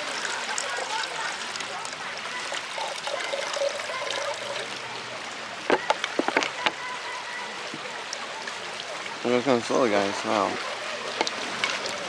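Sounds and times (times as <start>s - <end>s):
river water running: 0.0s - 12.0s
sharp clicks and knocks: 5.7s - 6.8s.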